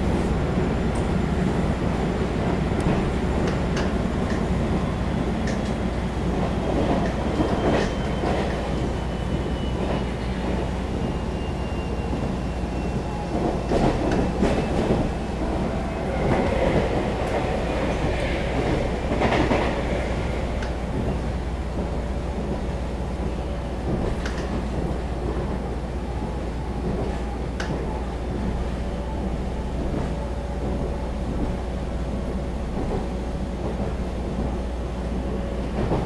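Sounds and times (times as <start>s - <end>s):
train wheels rumbling on rail: 0.0s - 36.0s
clacks over rail joints: 2.8s - 4.5s.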